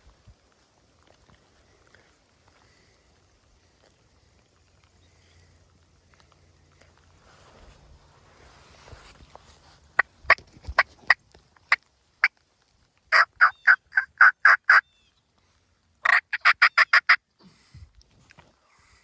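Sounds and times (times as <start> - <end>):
turkey clucking and yelping: 13.1 - 15.0, 16.0 - 17.2.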